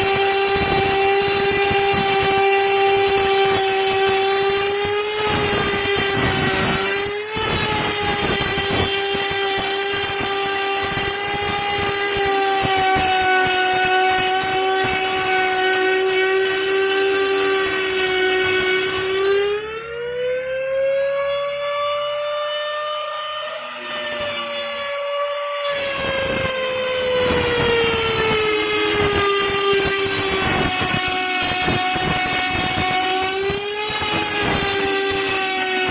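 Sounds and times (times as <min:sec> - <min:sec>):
electric wood router whining: 0:00.0 - 0:35.9
router bit rasping in wood: 0:23.6 - 0:35.9.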